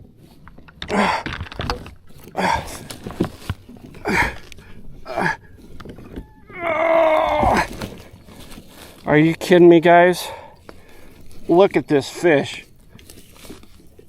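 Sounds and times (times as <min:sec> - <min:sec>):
man breathing hard: 0:02.4 - 0:03.0, 0:04.0 - 0:05.7, 0:10.2 - 0:11.4.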